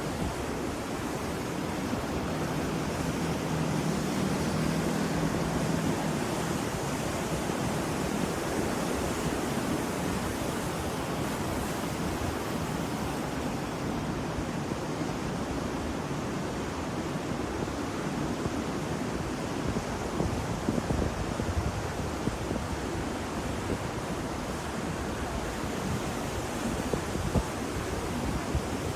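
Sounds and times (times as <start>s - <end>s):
ocean waves breaking: 0.0s - 20.2s.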